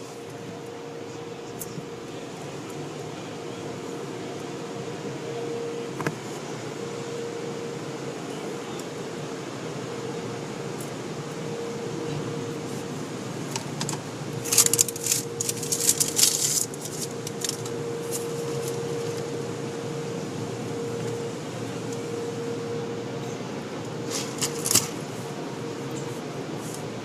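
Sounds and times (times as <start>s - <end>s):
steady machine hum: 0.0s - 27.0s
sharp clicks and rattles: 13.5s - 17.8s.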